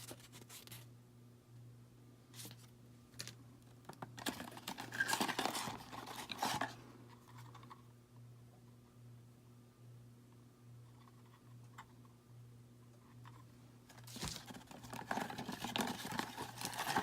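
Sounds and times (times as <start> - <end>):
faint steady hum: 0.0 - 17.0
packaging scraping and rustling: 4.2 - 6.8, 13.9 - 17.0.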